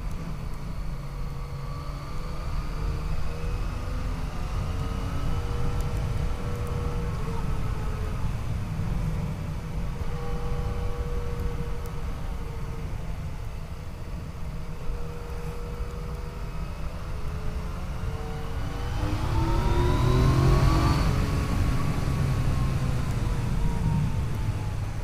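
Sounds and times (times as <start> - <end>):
low wind rumble: 0.0 - 25.0
motorcycle engine accelerating: 17.4 - 24.9.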